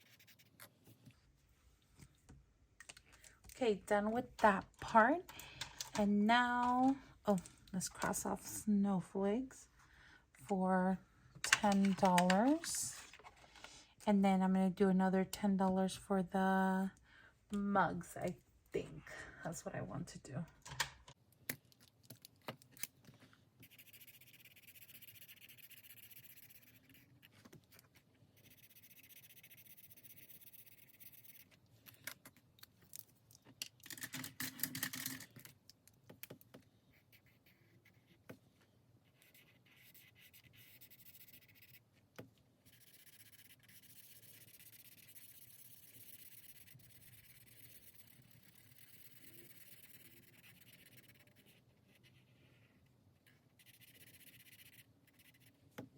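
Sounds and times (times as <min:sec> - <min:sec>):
pencil scratching on paper: 0:00.0 - 0:00.7, 0:23.6 - 0:31.6, 0:36.9 - 0:38.4, 0:39.0 - 0:41.9, 0:42.6 - 0:55.6.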